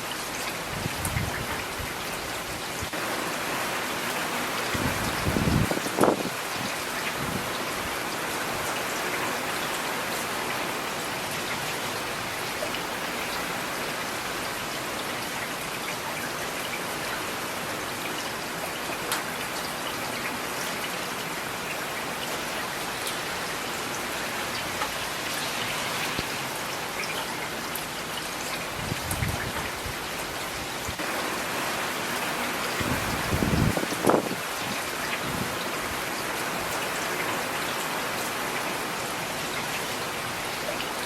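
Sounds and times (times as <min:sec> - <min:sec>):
rain falling: 0:00.0 - 0:41.0.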